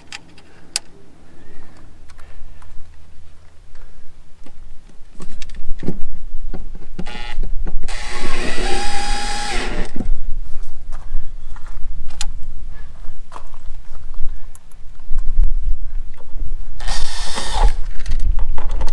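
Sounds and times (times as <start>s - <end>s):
cordless drill whining: 7.0s - 10.0s, 16.8s - 17.9s.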